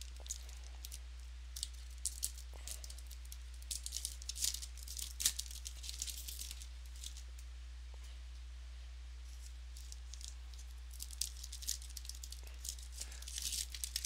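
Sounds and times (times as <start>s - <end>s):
card wrappers rustling: 1.6s - 7.3s, 9.3s - 14.0s
crisp clicks: 9.4s - 14.0s.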